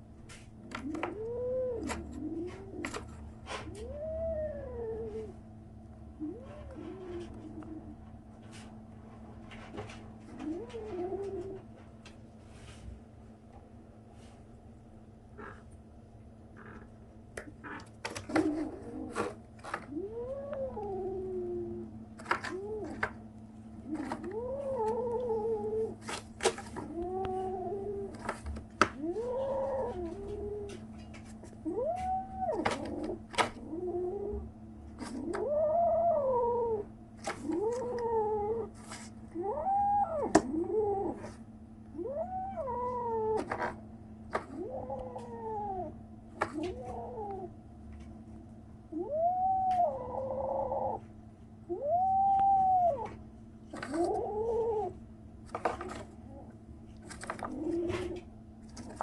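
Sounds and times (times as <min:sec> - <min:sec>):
kitten crying: 0:31.7 - 0:33.0, 0:41.9 - 0:43.5, 0:51.7 - 0:53.2.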